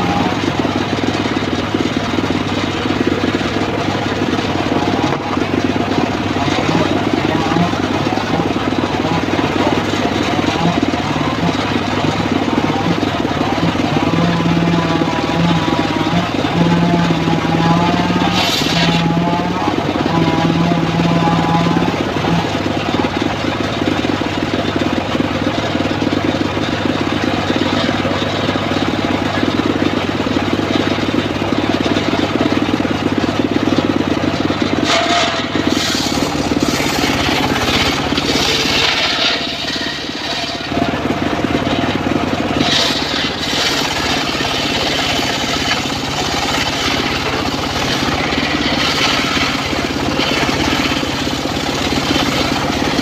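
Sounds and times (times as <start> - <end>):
circular sawmill running: 0.0 - 53.0
saw blade cutting wood: 6.3 - 23.0, 34.7 - 41.1, 42.4 - 53.0.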